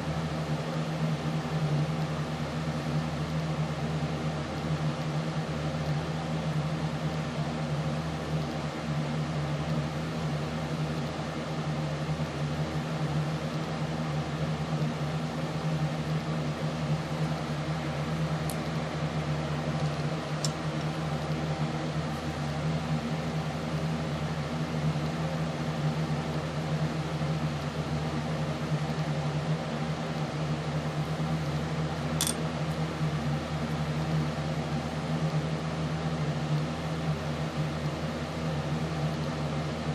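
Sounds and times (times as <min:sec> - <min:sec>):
low mechanical hum: 0:00.0 - 0:39.9.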